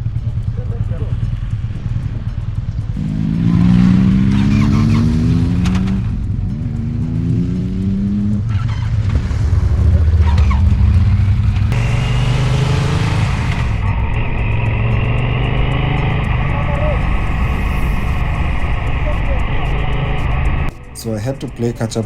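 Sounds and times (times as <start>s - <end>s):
motorcycle engine accelerating: 0.0s - 20.7s.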